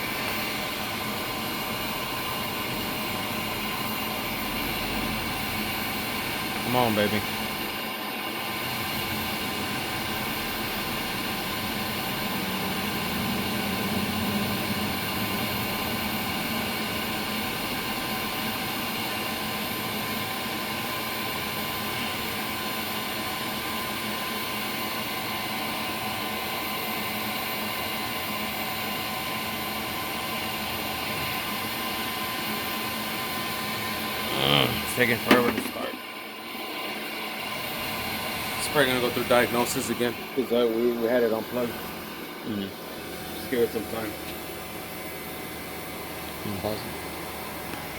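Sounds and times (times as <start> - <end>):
water heater blower humming: 0.0 - 47.9.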